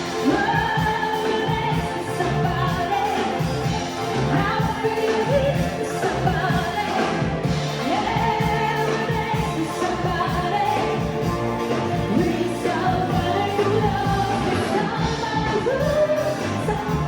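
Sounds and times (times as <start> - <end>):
live soul band playing: 0.0 - 17.0
singers holding long notes: 0.0 - 17.0
steady bass line: 0.0 - 17.0.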